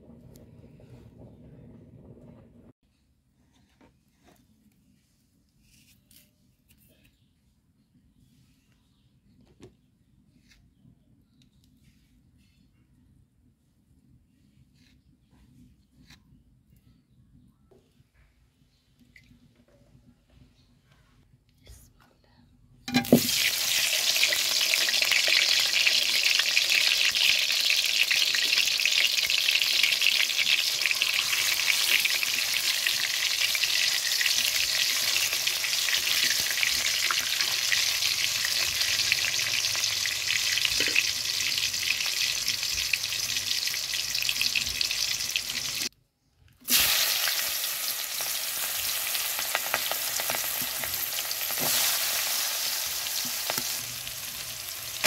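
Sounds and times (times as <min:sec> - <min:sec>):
fruit sizzling in hot oil: 0:22.9 - 0:45.9, 0:46.7 - 0:55.0
onions sizzling in oil: 0:22.9 - 0:45.9, 0:46.7 - 0:55.0
metal spatula turning food: 0:48.2 - 0:55.0.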